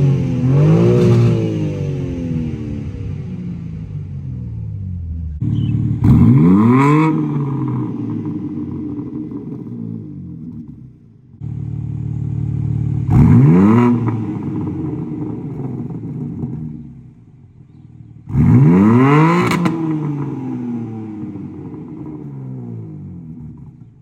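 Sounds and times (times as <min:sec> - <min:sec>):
car exhaust revving: 0:00.0 - 0:24.0
exhaust crack: 0:00.0 - 0:24.0.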